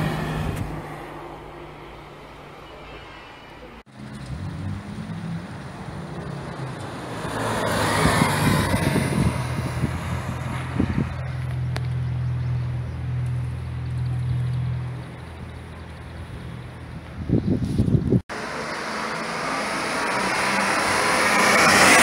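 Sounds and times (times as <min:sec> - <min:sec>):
race car engine at speed: 0:03.9 - 0:12.4, 0:18.3 - 0:22.0.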